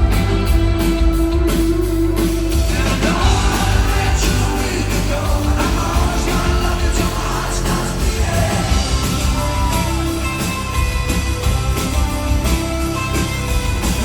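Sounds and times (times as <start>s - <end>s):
live rock band playing: 0.0s - 14.0s
person singing: 2.7s - 10.3s.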